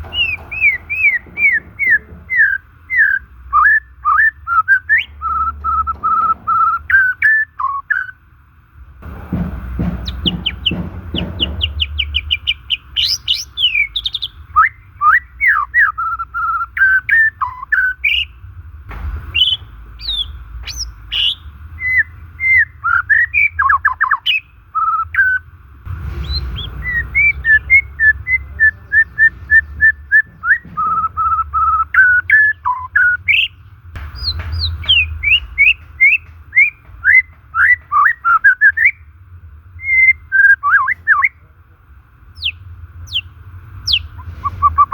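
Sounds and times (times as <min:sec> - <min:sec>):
bird singing whistled song: 0:00.0 - 0:08.2, 0:10.0 - 0:18.4, 0:19.2 - 0:25.5, 0:26.2 - 0:39.1, 0:39.8 - 0:41.4, 0:42.4 - 0:44.9
low rumble: 0:25.5 - 0:32.2, 0:33.5 - 0:37.9.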